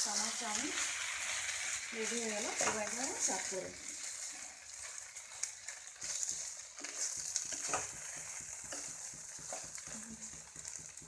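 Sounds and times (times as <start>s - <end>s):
noodles sizzling in a hot pan: 0.0s - 11.0s
utensil scraping and knocking pan: 6.0s - 11.0s.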